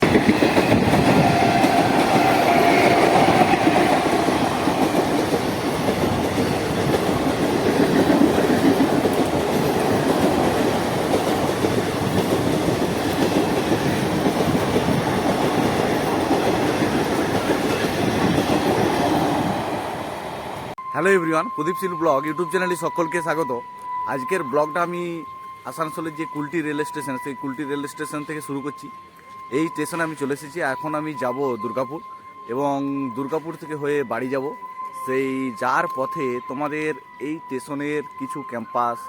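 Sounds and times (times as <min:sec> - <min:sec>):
train wheels clattering on track: 0:00.0 - 0:19.8
steady high tone: 0:20.6 - 0:39.0.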